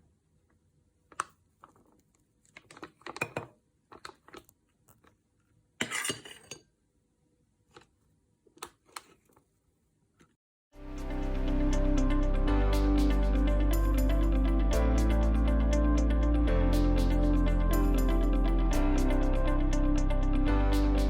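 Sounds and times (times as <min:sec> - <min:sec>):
utensil scraping and clinking bowl: 0:05.8 - 0:06.7.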